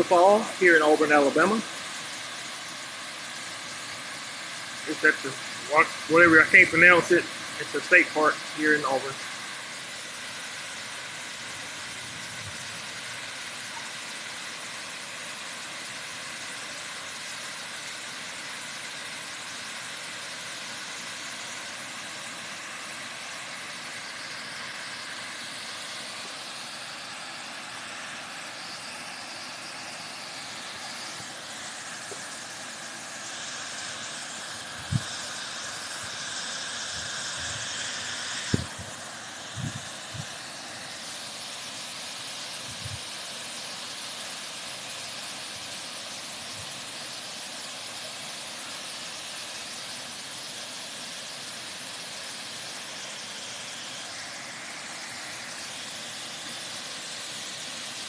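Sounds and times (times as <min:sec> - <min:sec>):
waterfall rushing: 0:00.0 - 0:12.0, 0:19.3 - 0:44.4.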